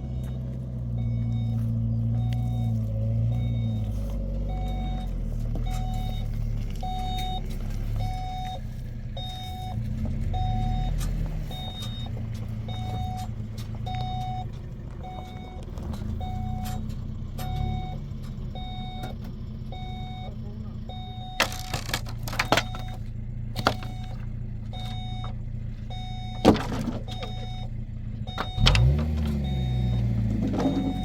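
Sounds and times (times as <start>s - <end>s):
electronic warning beeper: 0.0s - 8.6s, 9.2s - 13.3s, 28.3s - 31.0s
engine low rumble: 0.0s - 31.0s.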